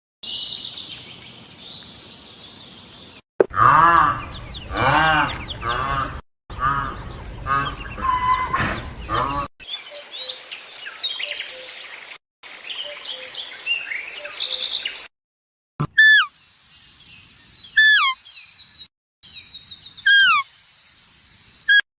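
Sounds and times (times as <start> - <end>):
birds chirping and singing: 0.2 - 15.1, 15.9 - 21.8
bird call with falling notes: 15.9 - 16.3, 17.7 - 18.3, 20.0 - 20.5.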